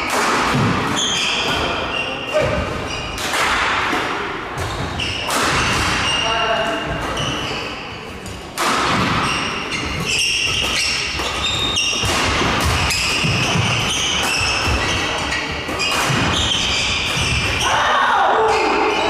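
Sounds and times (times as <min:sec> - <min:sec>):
racket hitting shuttlecock: 0:00.0 - 0:01.8, 0:02.4 - 0:06.2, 0:08.5 - 0:17.6
voices in a hall: 0:00.0 - 0:12.0, 0:12.8 - 0:19.0
shoes squeaking on court floor: 0:00.9 - 0:03.2, 0:04.6 - 0:08.4, 0:09.1 - 0:17.7.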